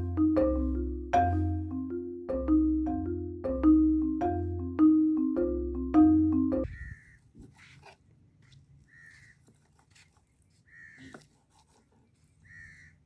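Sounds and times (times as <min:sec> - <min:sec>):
bird calling: 0:12.5 - 0:13.0.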